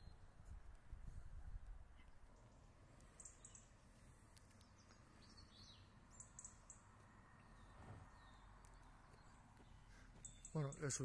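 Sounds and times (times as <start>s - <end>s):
faint high bird chirps: 0.0s - 0.3s, 1.9s - 3.8s, 4.5s - 11.0s.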